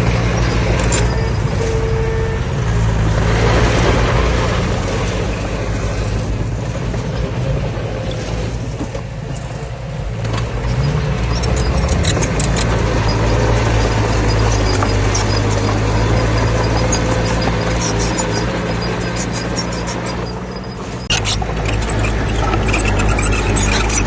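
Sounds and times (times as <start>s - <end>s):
heavy diesel engine running: 0.0s - 24.0s
rapid clicking: 11.3s - 24.0s.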